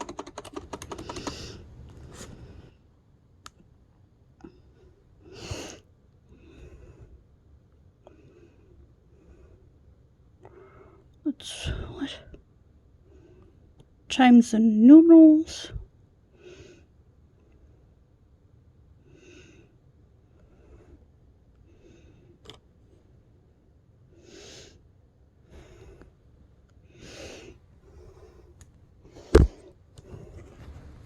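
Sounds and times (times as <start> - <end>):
person breathing: 0.9 - 2.9, 4.4 - 7.3, 19.0 - 22.4, 25.4 - 26.2, 26.9 - 30.8.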